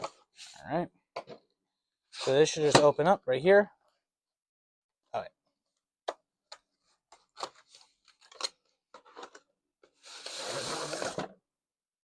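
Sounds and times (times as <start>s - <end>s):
loud scraping rustle: 10.0s - 11.2s.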